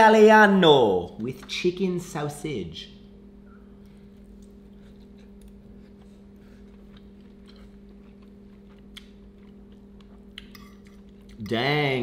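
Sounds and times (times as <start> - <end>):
steady low hum: 0.0 - 12.0
person chewing food: 3.9 - 11.5.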